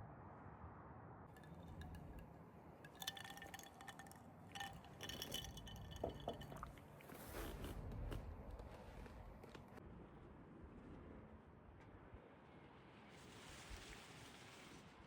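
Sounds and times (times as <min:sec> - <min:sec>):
clinks of small hard objects: 0:01.4 - 0:02.2, 0:02.9 - 0:06.8.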